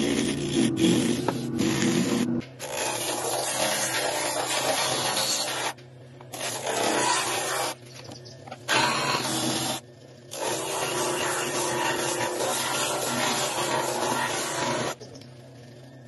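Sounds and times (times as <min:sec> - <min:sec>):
wood being sanded: 0:00.0 - 0:05.7, 0:06.4 - 0:07.8, 0:10.4 - 0:15.0
steady low hum: 0:00.0 - 0:16.0.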